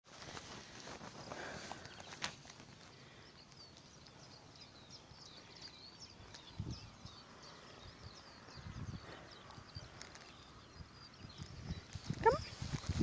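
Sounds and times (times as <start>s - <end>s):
faint birdsong: 0.1s - 13.0s.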